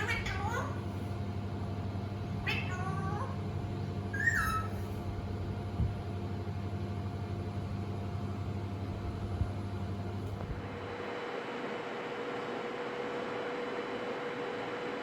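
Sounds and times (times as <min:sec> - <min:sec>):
parrot squawking: 0:00.0 - 0:00.8, 0:02.4 - 0:03.4, 0:04.1 - 0:04.9
steady low hum: 0:00.0 - 0:15.0.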